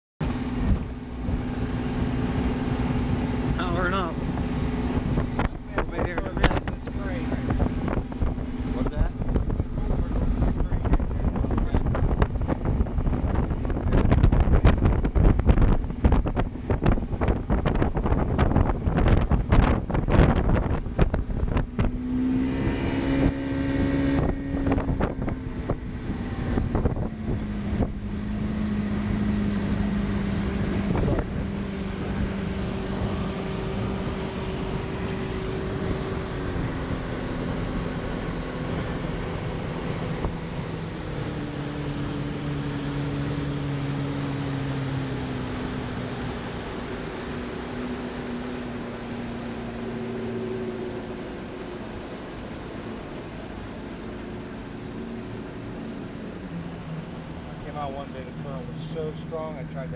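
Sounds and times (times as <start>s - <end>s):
wind buffeting microphone: 0.2s - 57.8s
boat motor running: 0.2s - 59.9s.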